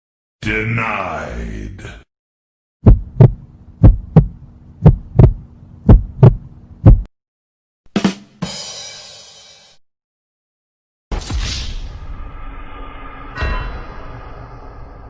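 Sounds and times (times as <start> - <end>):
heartbeat thumps: 2.8 - 7.1.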